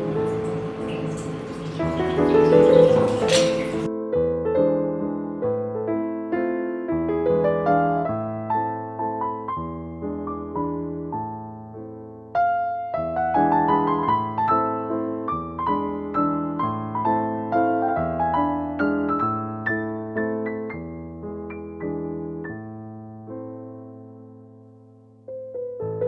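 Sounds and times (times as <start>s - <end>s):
running water hiss: 0.0s - 3.9s
gentle piano melody: 0.0s - 26.0s.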